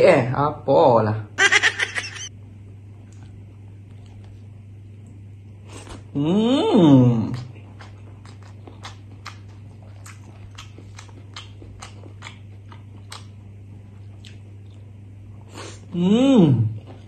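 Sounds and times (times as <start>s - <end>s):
steady low hum: 0.0s - 17.0s
wet mouth chewing clicks: 7.4s - 13.4s.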